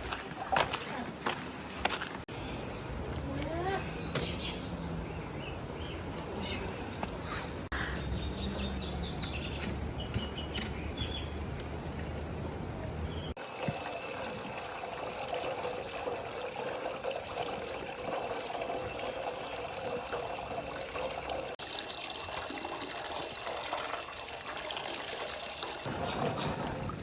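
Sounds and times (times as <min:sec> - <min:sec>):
water running and trickling: 0:13.3 - 0:27.0.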